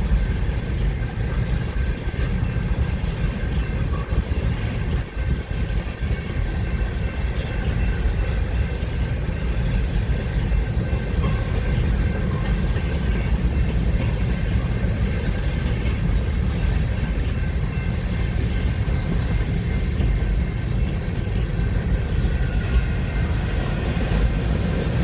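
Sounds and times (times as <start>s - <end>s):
train passing with low rumble: 0.0s - 25.0s.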